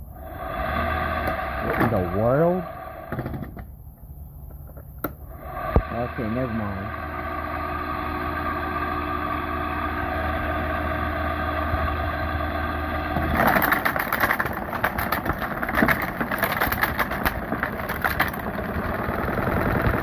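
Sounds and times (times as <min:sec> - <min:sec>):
air conditioner humming: 0:00.0 - 0:20.0
rough rattling and crackling: 0:13.1 - 0:20.0.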